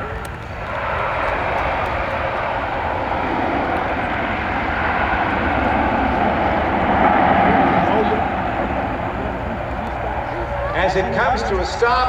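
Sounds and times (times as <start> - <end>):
turboprop engines running loud: 0.0 - 12.0.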